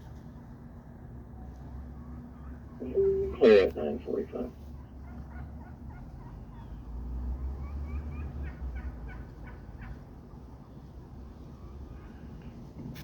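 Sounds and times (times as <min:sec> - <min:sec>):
wild turkeys calling: 0:02.4 - 0:04.5.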